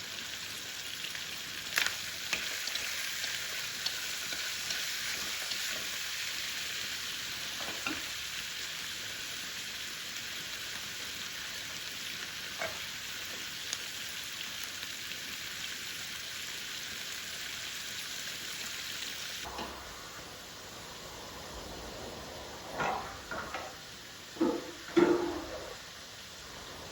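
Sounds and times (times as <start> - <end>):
food sizzling in a hot pan: 0.0 - 26.9.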